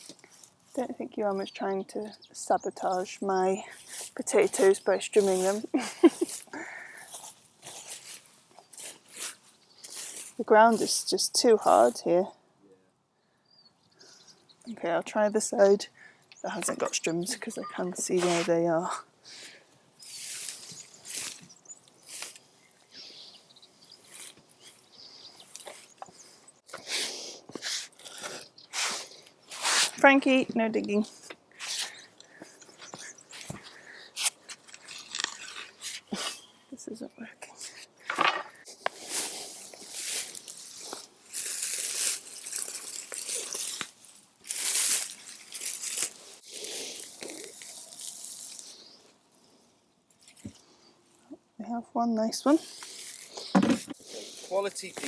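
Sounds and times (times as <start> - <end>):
birds chirping faintly: 0.0 - 18.3, 19.0 - 38.9
digging scraping in dry soil: 2.8 - 11.9, 16.7 - 18.8, 20.0 - 30.4, 31.1 - 36.6, 37.7 - 49.0, 52.5 - 55.0.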